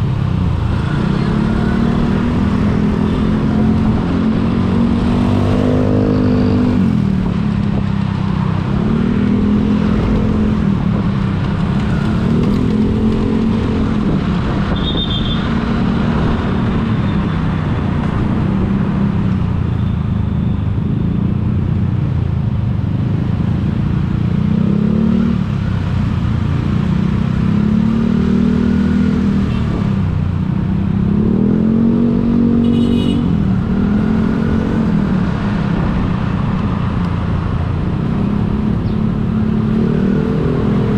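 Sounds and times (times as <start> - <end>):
vehicle engine revving: 0.0 - 14.7, 24.4 - 37.0, 37.6 - 40.9
road noise: 0.0 - 40.9.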